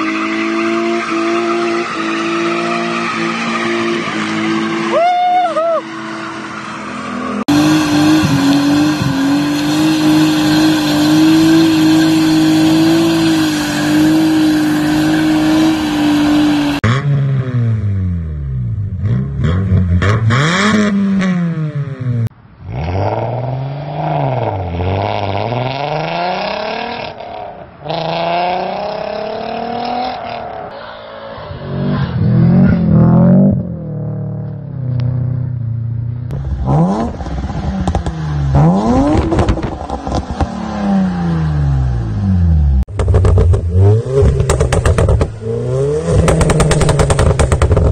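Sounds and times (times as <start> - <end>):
car engine revving: 5.8 - 22.3, 31.3 - 47.9
car engine at rev limiter: 5.8 - 30.7, 36.2 - 47.9.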